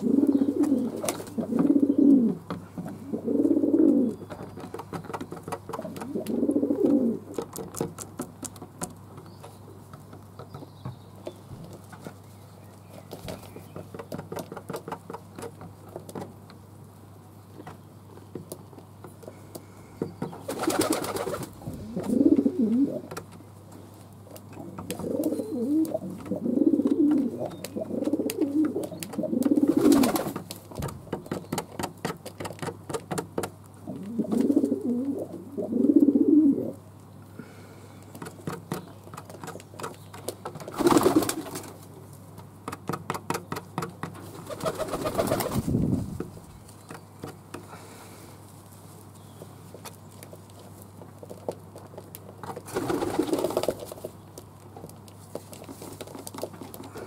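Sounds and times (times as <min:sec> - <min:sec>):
doves cooing: 0:00.0 - 0:07.8, 0:19.2 - 0:23.3, 0:24.3 - 0:31.7, 0:33.8 - 0:41.7.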